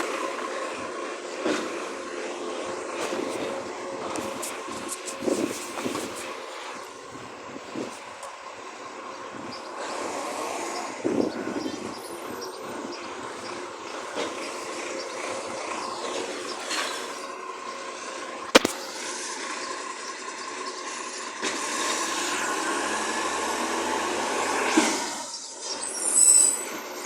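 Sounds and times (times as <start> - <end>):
garbage truck machinery running: 0.0 - 25.8
short clatter: 18.5 - 18.9
sharp bang: 18.6 - 18.9.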